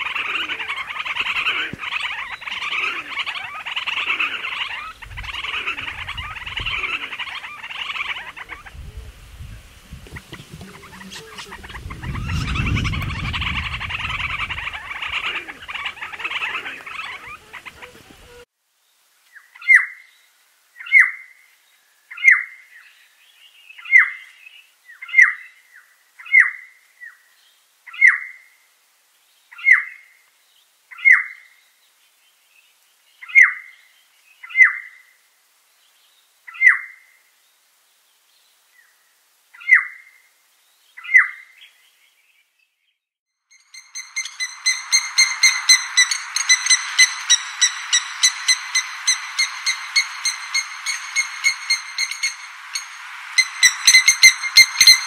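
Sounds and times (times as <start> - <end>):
bird calling sharp downslurred note: 0.0 - 9.2, 10.0 - 18.5, 43.7 - 55.0
busy bird chatter: 0.0 - 18.5, 43.8 - 55.0.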